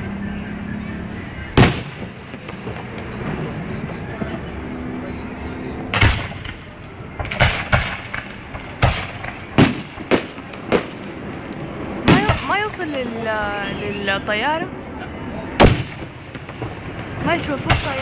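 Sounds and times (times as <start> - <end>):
firework shells bursting: 5.9 - 12.8.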